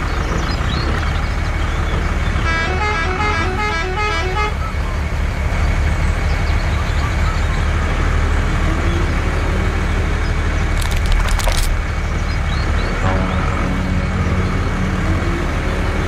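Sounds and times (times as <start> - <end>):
sharp cracks: 10.7 - 12.0.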